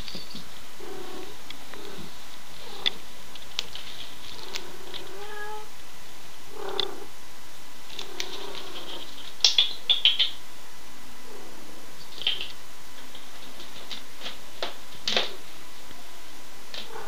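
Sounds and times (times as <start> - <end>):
cat meowing: 5.0 - 5.7.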